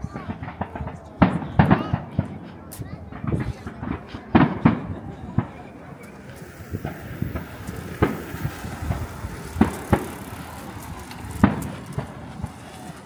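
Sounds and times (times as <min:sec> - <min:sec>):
small firework pops: 0:00.0 - 0:13.0
firework shell bursts: 0:03.2 - 0:12.9.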